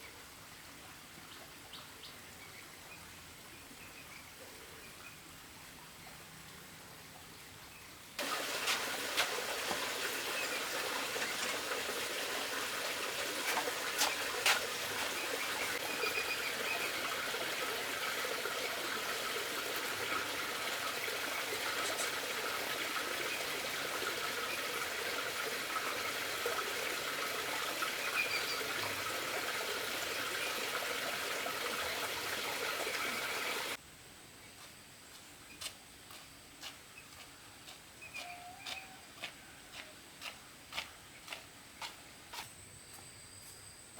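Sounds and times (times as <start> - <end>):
running water trickling: 5.1 - 33.8.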